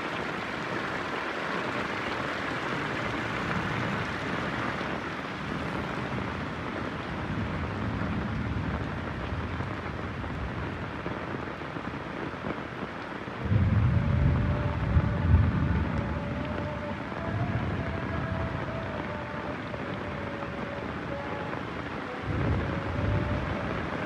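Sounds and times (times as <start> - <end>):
heavy rain falling: 0.0 - 24.0
low thunder rumbling: 5.4 - 11.0, 13.4 - 19.2, 22.2 - 24.0.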